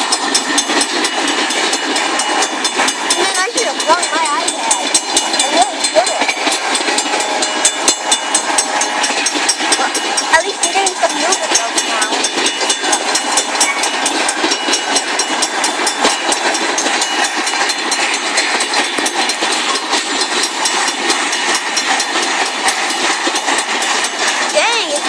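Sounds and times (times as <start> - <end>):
freight train wheels clicking: 0.0 - 25.0.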